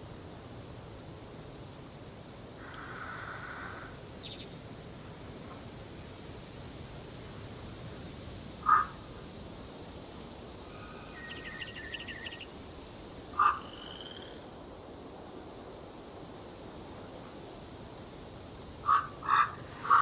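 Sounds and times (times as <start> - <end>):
background hiss: 0.0 - 20.0
loud short bird calls: 2.6 - 4.4, 8.6 - 8.9, 13.4 - 14.4, 18.8 - 20.0
bird trill: 10.8 - 12.5.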